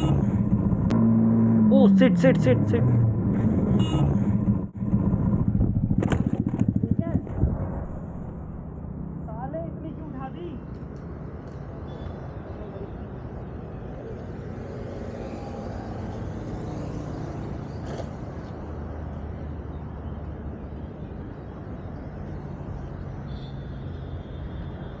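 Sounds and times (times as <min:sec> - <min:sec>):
road noise: 0:00.0 - 0:25.0
motorcycle engine running: 0:03.8 - 0:09.4.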